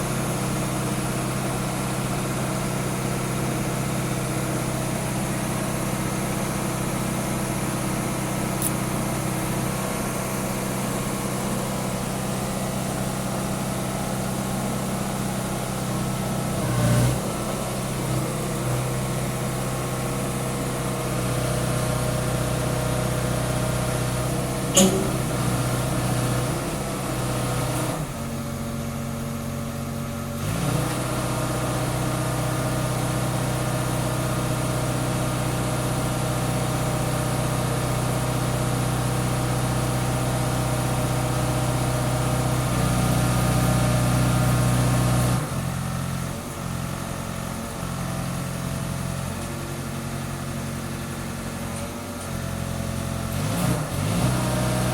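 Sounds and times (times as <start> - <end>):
diesel truck engine running: 0.0 - 49.2
sharp click: 8.6 - 8.8, 24.8 - 25.7.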